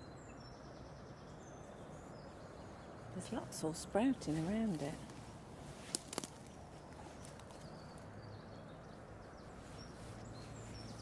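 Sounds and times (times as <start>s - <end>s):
faint bird chirps: 6.4s - 11.0s.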